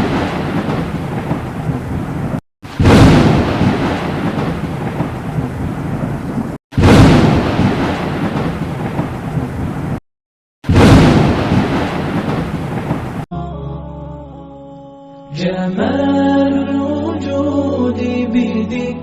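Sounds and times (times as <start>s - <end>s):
rain: 0.0s - 10.0s, 10.7s - 13.3s
thunder claps rumbling: 0.0s - 10.0s, 10.7s - 13.3s.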